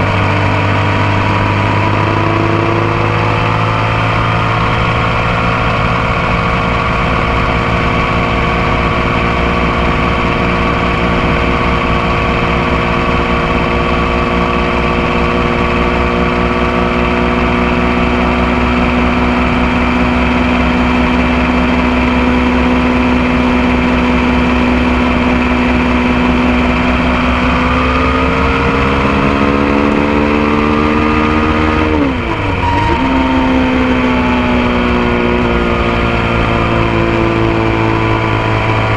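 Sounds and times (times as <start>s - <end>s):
motorcycle engine running: 0.0s - 38.9s
road and wind noise: 0.0s - 38.9s.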